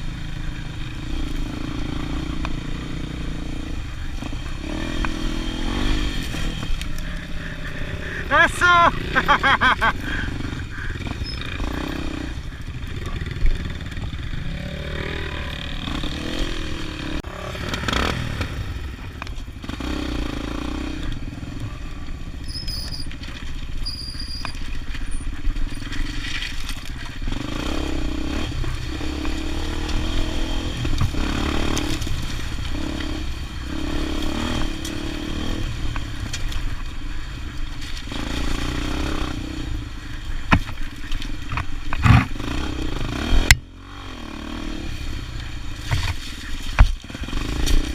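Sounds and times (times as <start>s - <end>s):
clatter over rough ground: 0.0s - 43.8s, 45.3s - 47.9s
motorcycle engine running: 0.0s - 47.9s.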